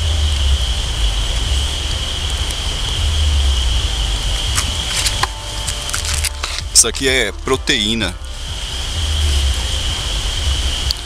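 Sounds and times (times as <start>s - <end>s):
forest background: 0.0s - 11.0s
low rumble on microphone: 0.0s - 11.0s
insect shrilling: 4.0s - 6.7s.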